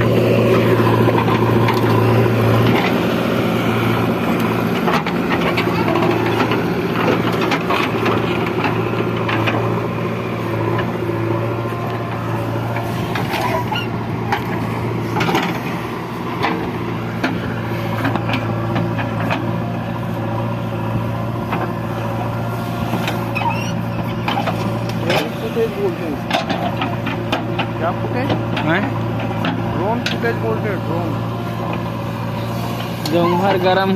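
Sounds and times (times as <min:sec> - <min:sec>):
heavy machinery diesel engines: 0:00.0 - 0:33.9
sharp knocks and clanks: 0:13.1 - 0:15.8, 0:26.2 - 0:30.5.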